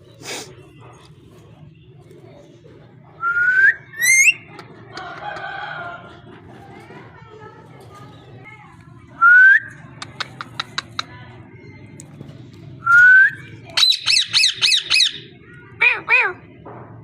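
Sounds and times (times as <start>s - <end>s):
parrot whistling: 3.2s - 4.4s
parrot squawking: 3.9s - 4.5s, 13.8s - 16.4s
parrot clicks: 10.0s - 11.1s.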